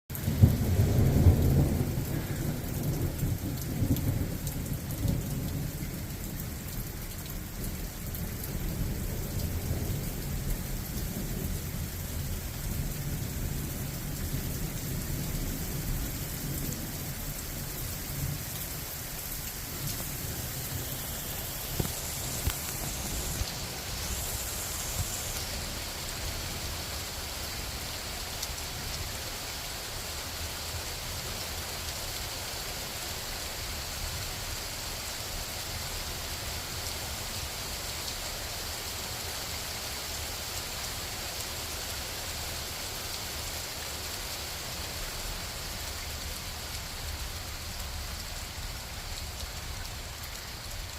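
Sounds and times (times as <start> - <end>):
steady rain falling: 0.1 - 50.9
thunder rumbling: 0.2 - 6.3, 8.6 - 25.9.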